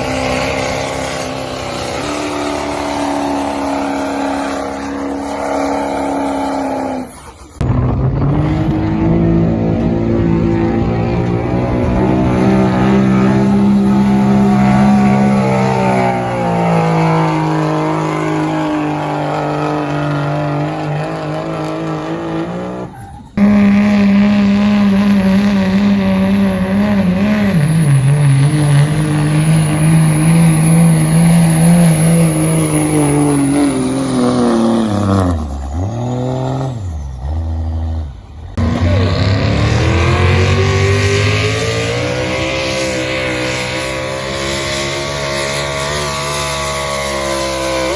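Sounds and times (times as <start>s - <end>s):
diesel truck engine under load: 0.0s - 47.9s.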